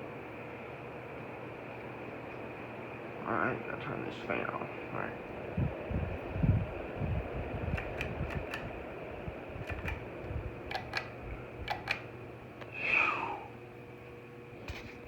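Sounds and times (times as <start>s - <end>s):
pull-chain switch clicking: 7.7s - 8.7s, 9.6s - 10.0s, 10.7s - 12.0s.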